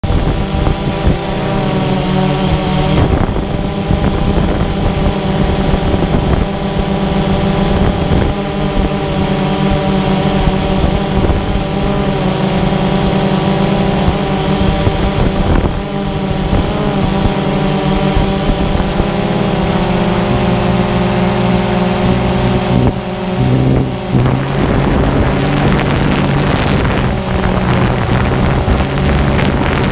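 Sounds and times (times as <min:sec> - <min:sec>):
drone propellers buzzing: 0:00.0 - 0:29.9.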